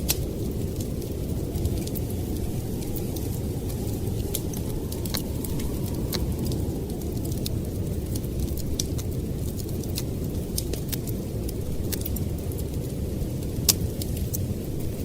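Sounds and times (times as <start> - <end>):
blizzard wind blowing: 0.0 - 15.0
wood fire crackling: 0.0 - 15.0.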